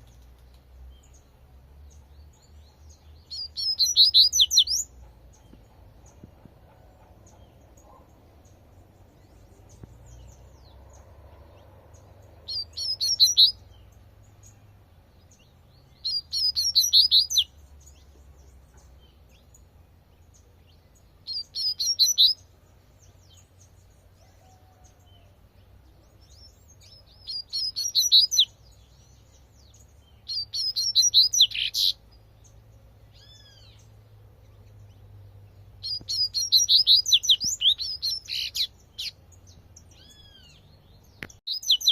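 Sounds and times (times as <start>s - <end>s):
bird singing high repeated notes: 2.4s - 5.0s, 12.0s - 14.6s, 15.9s - 17.6s, 20.7s - 22.5s, 26.4s - 29.2s, 29.9s - 32.0s, 35.8s - 39.2s, 40.0s - 41.9s.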